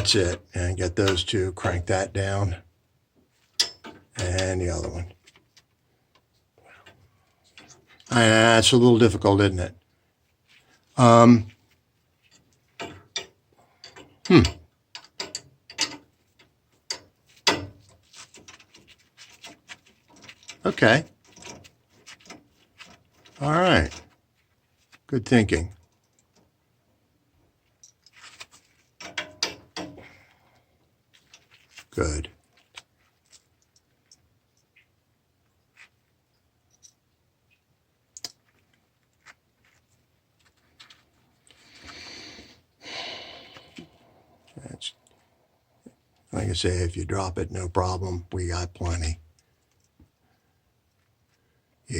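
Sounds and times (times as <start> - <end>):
metal tools clicking and scraping: 3.4 - 4.5, 12.2 - 24.2, 27.6 - 30.1, 35.8 - 37.1
breathy rushing noise: 41.8 - 44.5.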